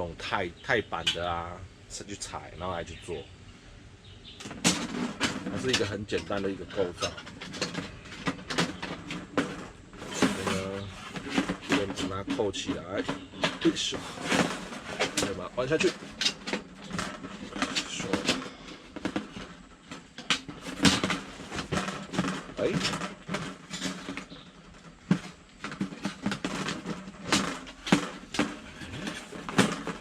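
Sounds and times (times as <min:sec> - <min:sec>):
metal plates clicking and clinking: 0:04.4 - 0:30.0.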